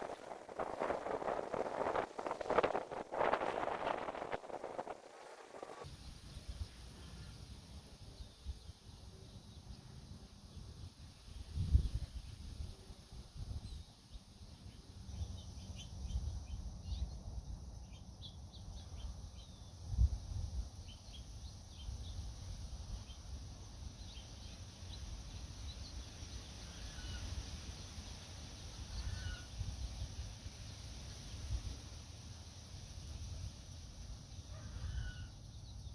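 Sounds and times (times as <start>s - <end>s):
wind buffeting microphone: 0.0s - 5.8s
small birds chirping: 13.6s - 19.9s, 20.8s - 29.4s.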